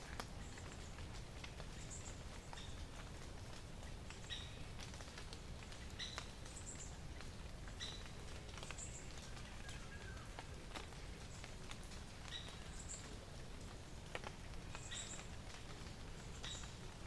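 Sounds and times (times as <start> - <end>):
faint scattered clicks: 0.0 - 17.0.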